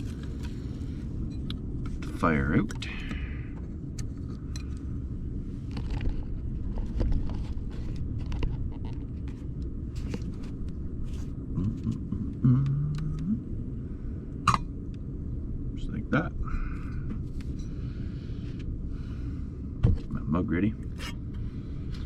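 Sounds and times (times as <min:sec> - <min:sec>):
steady low rumble: 0:00.0 - 0:22.0
person humming: 0:11.5 - 0:13.5.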